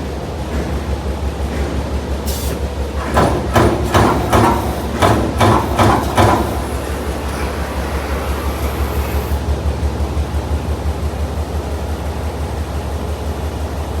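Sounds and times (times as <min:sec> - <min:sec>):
low machine hum: 0:02.8 - 0:14.0.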